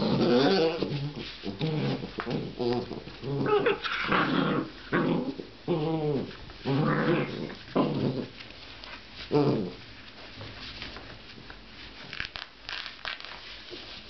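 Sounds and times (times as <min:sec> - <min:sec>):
puppies growling and whimpering: 0:00.0 - 0:08.4, 0:09.3 - 0:09.8.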